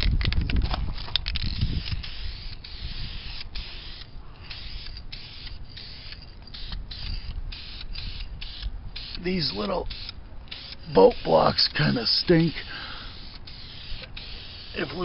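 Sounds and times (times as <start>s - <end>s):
wind rumble on microphone: 0.0s - 3.6s
spray paint can hissing: 1.5s - 15.0s.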